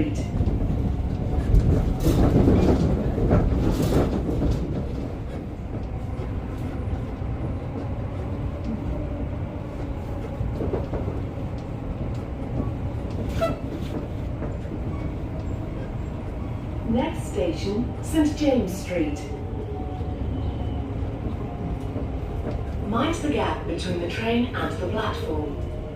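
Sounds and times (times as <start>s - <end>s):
train carriage rumble: 0.0s - 25.9s.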